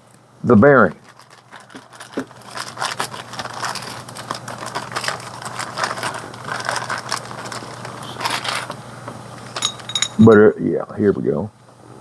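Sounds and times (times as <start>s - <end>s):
parts being handled: 1.1s - 10.5s
steady low hum: 2.3s - 12.0s.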